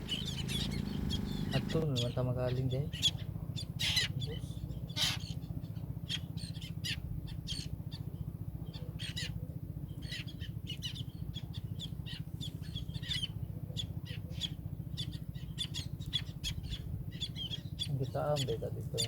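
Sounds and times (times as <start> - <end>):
birds chirping: 0.0 - 19.0
steady low hum: 0.0 - 19.0.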